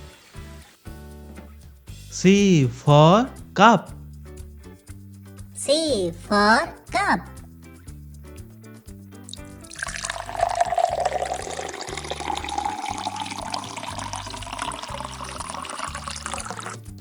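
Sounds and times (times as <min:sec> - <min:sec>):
soft children's tune: 0:02.1 - 0:04.0, 0:05.6 - 0:07.4
water pouring into a cup: 0:09.3 - 0:16.9.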